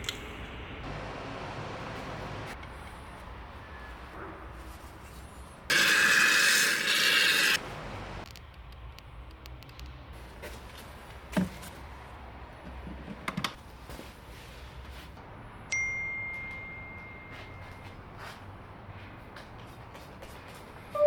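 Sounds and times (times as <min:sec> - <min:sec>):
metallic ding: 0:15.7 - 0:17.8.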